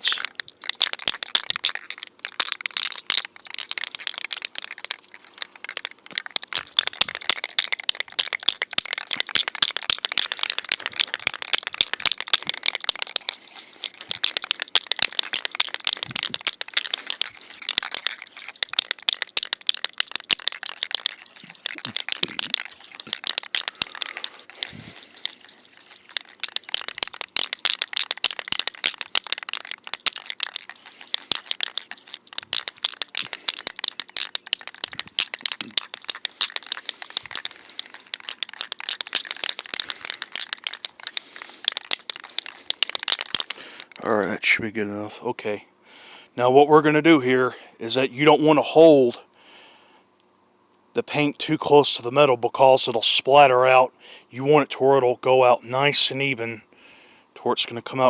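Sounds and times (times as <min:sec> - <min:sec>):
spray can rattling: 0:00.0 - 0:44.0.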